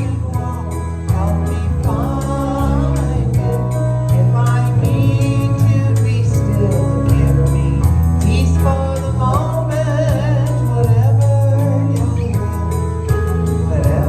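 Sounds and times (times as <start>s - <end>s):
woman singing: 0.0s - 12.8s, 13.5s - 14.0s
worship band playing: 0.0s - 14.0s.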